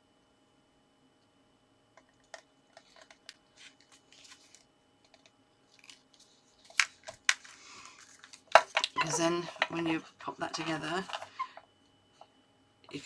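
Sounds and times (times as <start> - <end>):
paper rustling: 2.8 - 4.7.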